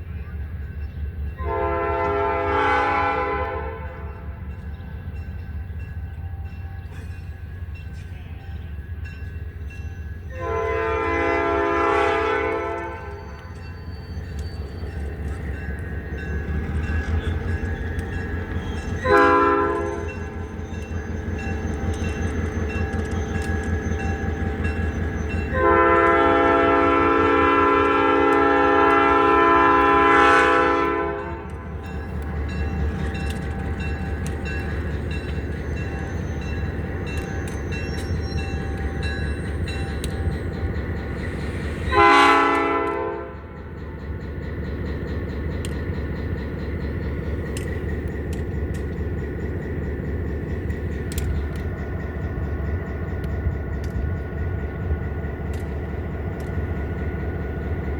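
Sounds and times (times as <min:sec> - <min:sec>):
locomotive engine running: 0:00.0 - 0:57.9
locomotive air horn blasts: 0:01.4 - 0:04.4, 0:10.3 - 0:13.2, 0:19.0 - 0:20.0, 0:25.5 - 0:31.6, 0:41.9 - 0:43.5.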